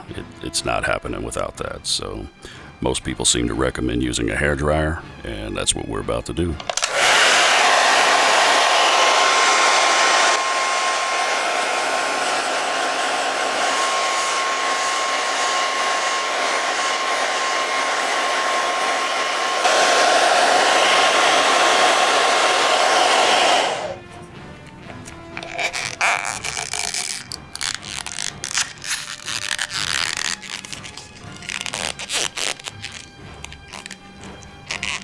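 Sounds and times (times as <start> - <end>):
hair dryer blowing: 6.6 - 24.2.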